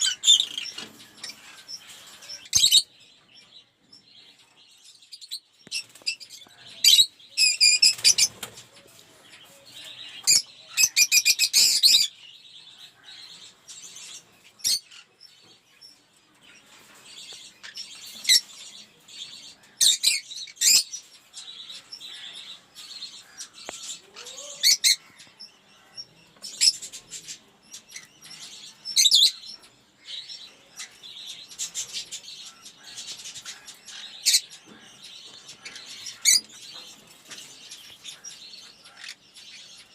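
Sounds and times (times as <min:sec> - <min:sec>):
lovebirds chirping and chattering: 0:00.0 - 0:39.9.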